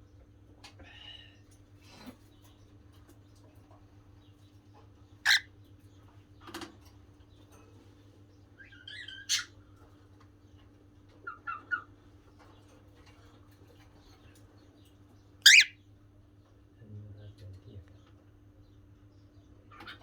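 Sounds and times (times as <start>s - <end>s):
cockatiel chirping: 5.3s - 5.5s, 15.4s - 15.8s.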